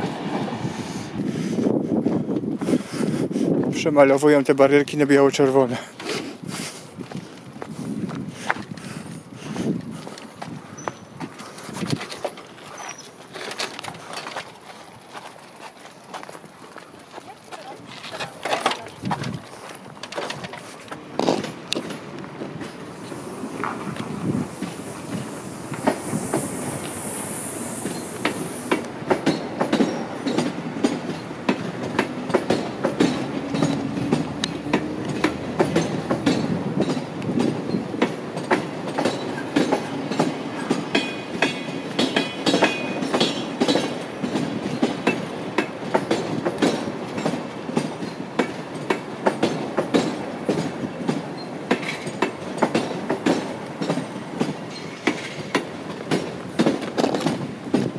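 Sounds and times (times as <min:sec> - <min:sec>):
passenger train rumbling: 0:00.0 - 0:57.9
wheels clickety-clack: 0:00.0 - 0:57.9
high hiss: 0:22.7 - 0:29.1.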